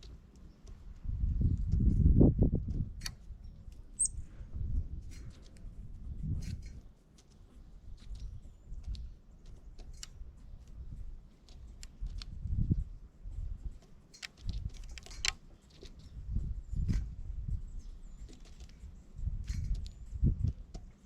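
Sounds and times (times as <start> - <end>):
birds clicking and tapping: 0.0 - 21.0
faint high bird chirps: 3.4 - 4.3, 15.6 - 20.3.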